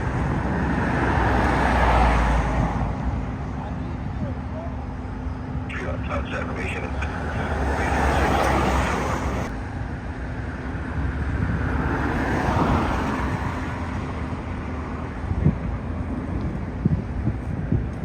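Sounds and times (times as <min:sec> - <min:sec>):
vehicles passing: 0:00.0 - 0:18.0
steady low rumble: 0:02.6 - 0:11.8.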